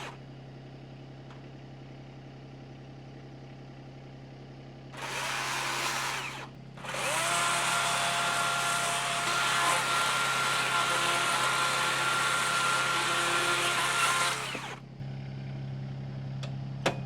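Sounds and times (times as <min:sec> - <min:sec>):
chainsaw idling and revving: 0:00.0 - 0:00.2, 0:04.9 - 0:14.8.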